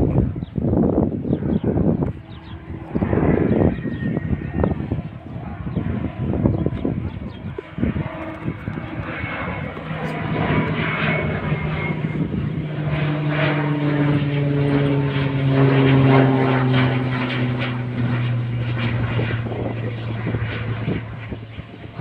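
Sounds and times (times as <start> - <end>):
turboprop plane flying past: 0.0 - 22.0.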